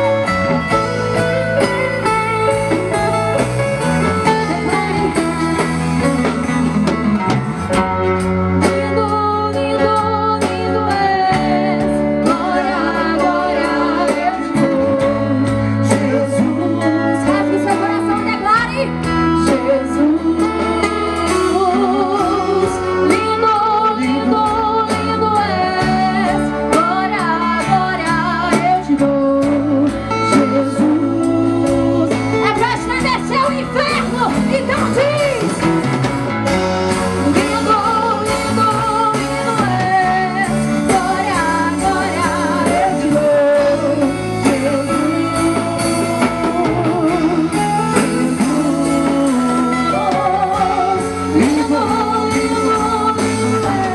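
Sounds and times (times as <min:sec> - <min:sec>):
band with guitar and bass: 0:00.0 - 0:53.9
person singing worship song: 0:10.9 - 0:17.6.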